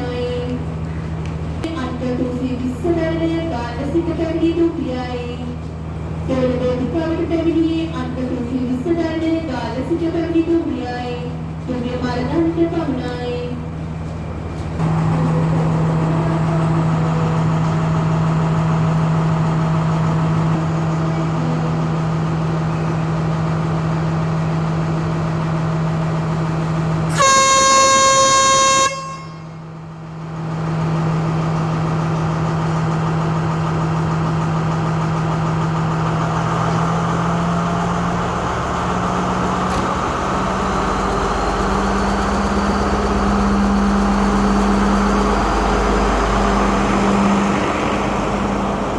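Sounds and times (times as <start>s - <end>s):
diesel train engine droning: 0.0s - 48.9s
train horn blast: 27.1s - 29.8s.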